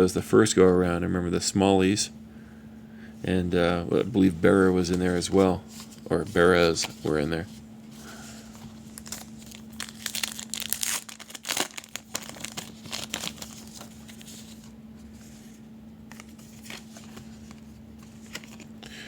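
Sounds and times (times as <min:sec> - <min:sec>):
wrapper tearing and crinkling: 0:08.9 - 0:14.6.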